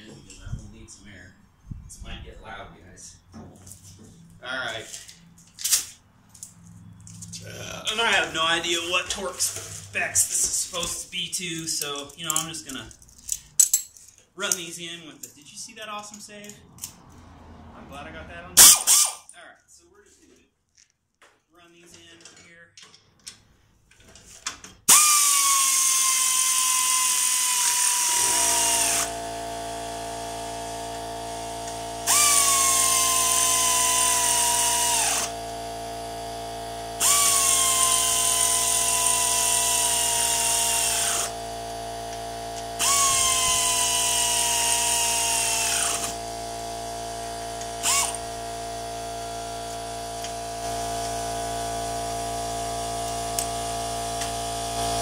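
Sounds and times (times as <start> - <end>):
air compressor motor running: 18.6 - 19.2, 24.9 - 55.0
pneumatic air ratchet whining: 18.6 - 19.3, 24.8 - 55.0.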